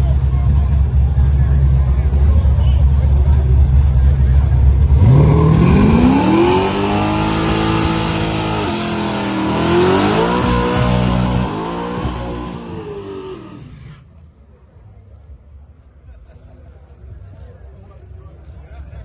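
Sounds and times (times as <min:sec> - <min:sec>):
car engine revving: 0:01.5 - 0:14.1.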